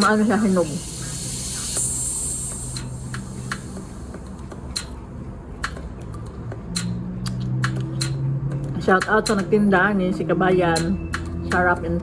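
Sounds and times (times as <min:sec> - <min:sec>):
lip and mouth clicks: 0:05.6 - 0:08.2.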